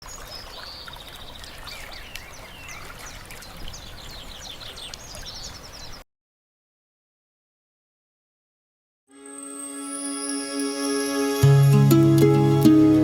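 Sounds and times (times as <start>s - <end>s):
small birds chirping and trilling: 0.0s - 6.0s.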